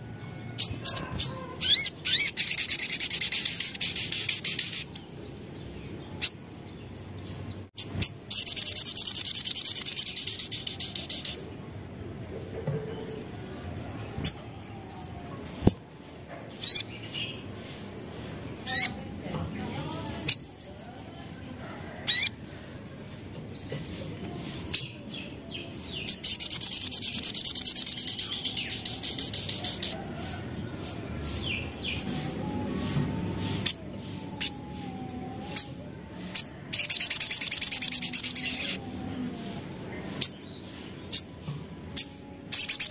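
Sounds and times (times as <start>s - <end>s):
sharp high-pitched bird notes: 42.0s - 42.9s.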